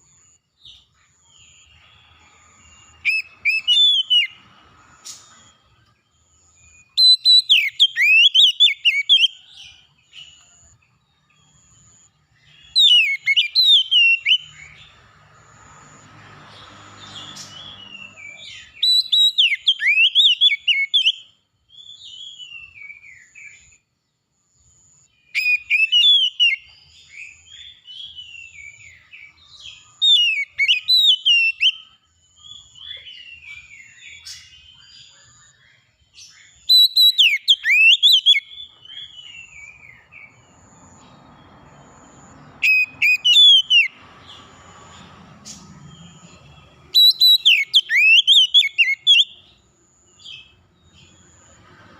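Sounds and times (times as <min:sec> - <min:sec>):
songbird whistling: 0:00.7 - 0:05.9, 0:06.6 - 0:10.6, 0:11.6 - 0:14.9, 0:17.0 - 0:23.8, 0:25.1 - 0:35.3, 0:36.2 - 0:41.1, 0:42.1 - 0:44.4, 0:45.5 - 0:49.6.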